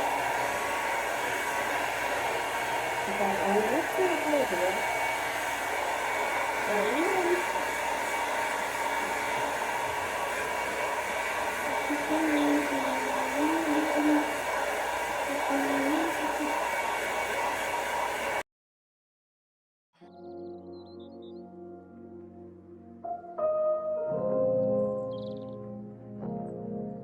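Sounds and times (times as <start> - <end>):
hair dryer blowing: 0.0 - 18.5.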